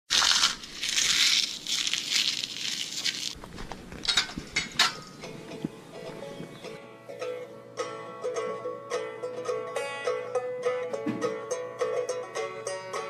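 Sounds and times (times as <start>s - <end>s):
sharp crackles and clicks: 0.1s - 4.3s
rustling crackling noise: 0.1s - 6.6s
faint plucked-string music: 4.7s - 13.0s.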